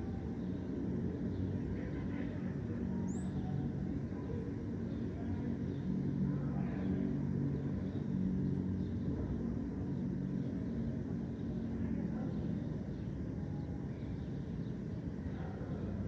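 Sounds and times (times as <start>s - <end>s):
faint bird chirps: 0.0s - 5.9s, 9.9s - 16.0s
city traffic rumble: 0.0s - 16.0s.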